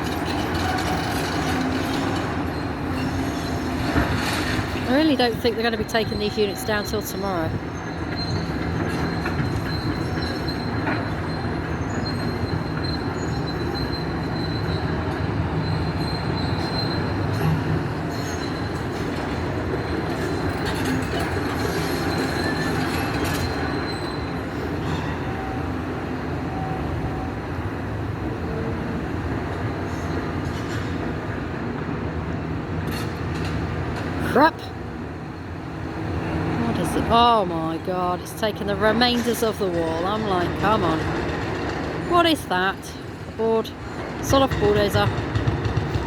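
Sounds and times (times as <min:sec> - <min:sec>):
metal and rubble clanking: 0:00.0 - 0:05.9
excavator engine drone: 0:00.0 - 0:46.0.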